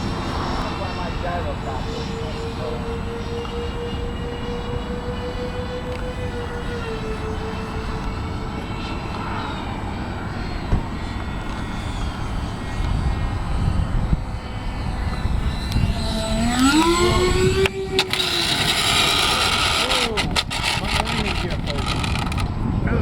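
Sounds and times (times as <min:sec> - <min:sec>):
model airplane motor running: 0:00.0 - 0:22.8
wind rumble on microphone: 0:00.0 - 0:23.0.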